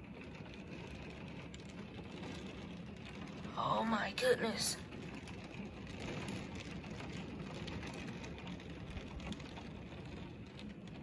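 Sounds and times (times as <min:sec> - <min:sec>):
heavy rain on pavement: 0:00.0 - 0:11.0.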